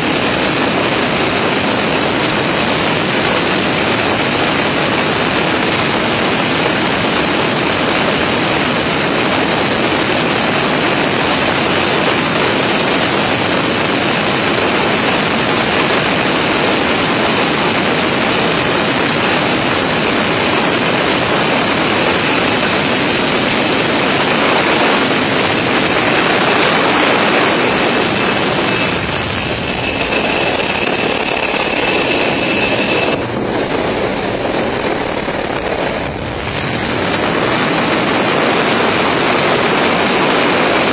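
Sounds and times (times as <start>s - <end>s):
thin high whine: 0.0s - 40.1s
aircraft engine and airflow rush: 0.0s - 40.9s.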